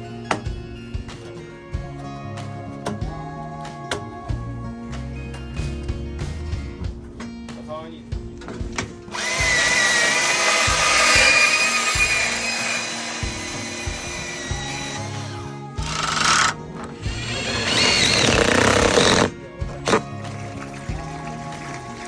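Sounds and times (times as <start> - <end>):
guitar music: 0.0 - 22.0
power drill whining: 9.1 - 20.5.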